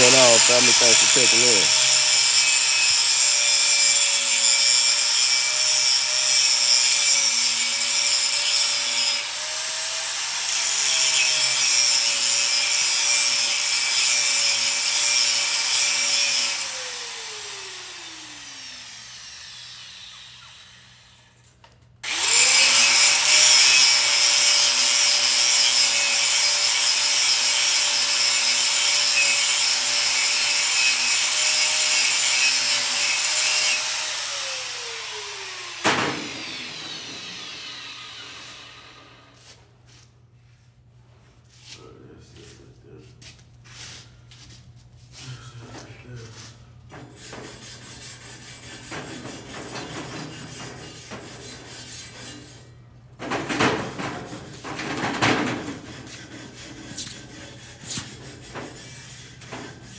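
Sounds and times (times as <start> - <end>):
grinder winding down: 0.0 - 3.6, 14.4 - 21.2, 22.0 - 39.2
electric grinder on metal: 0.0 - 21.3, 22.0 - 39.4.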